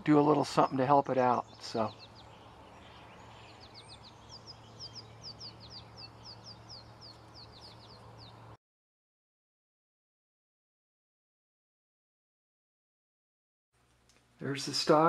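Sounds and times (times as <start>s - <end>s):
small bird chirping: 0.0s - 8.6s.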